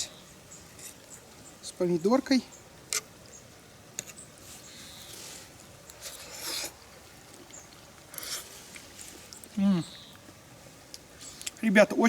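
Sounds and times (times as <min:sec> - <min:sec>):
fork scraping food: 0:04.0 - 0:06.9, 0:08.1 - 0:09.5.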